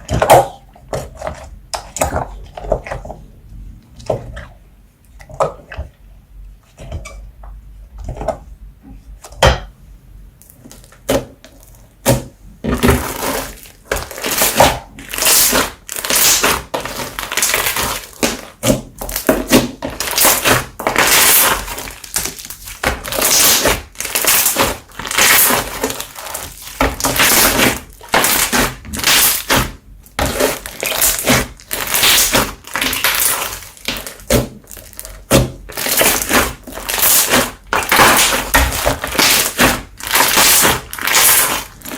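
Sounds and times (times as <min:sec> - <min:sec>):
slime crackling pops: 0:26.6 - 0:41.9.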